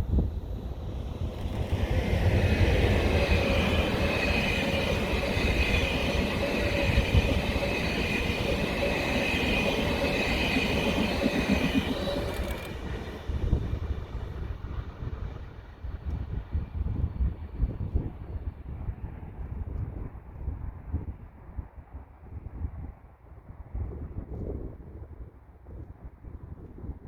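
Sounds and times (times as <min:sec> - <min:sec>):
train passing: 0:00.0 - 0:19.4
wind rumble on microphone: 0:00.0 - 0:27.0
high ringing tone: 0:02.6 - 0:13.2.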